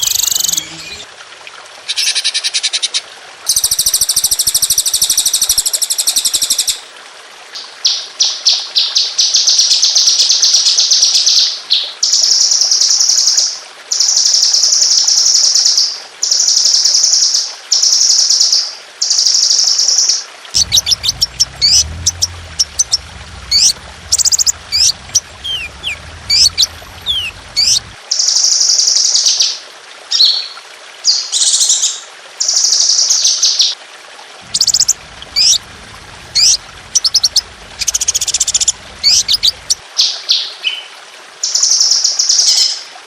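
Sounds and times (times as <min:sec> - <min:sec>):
songbird singing high trills: 0:00.0 - 0:01.1, 0:20.6 - 0:27.9.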